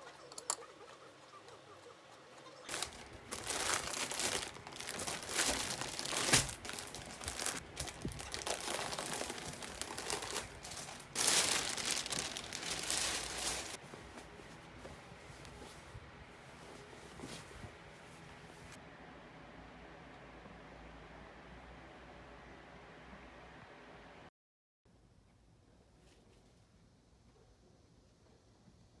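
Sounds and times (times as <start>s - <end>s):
crinkly packaging rustling: 2.7s - 18.8s.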